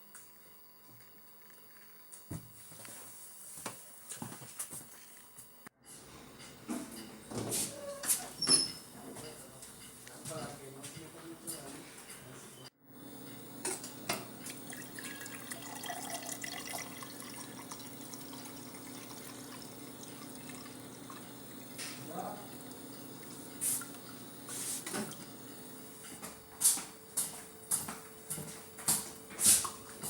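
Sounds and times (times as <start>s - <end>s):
faint steady hum: 12.8s - 26.0s
water dripping: 14.4s - 21.8s.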